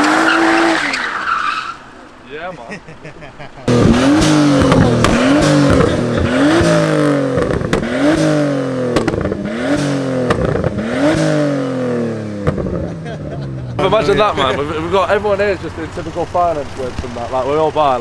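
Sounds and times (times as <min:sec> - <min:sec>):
car engine revving: 0:00.0 - 0:02.0, 0:03.7 - 0:18.0
exhaust pops and crackles: 0:03.7 - 0:18.0.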